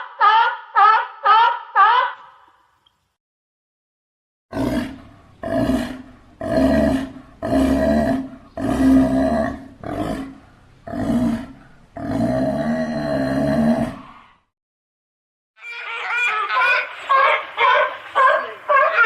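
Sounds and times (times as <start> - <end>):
sea lion barking: 0.1 - 2.3, 15.6 - 19.0.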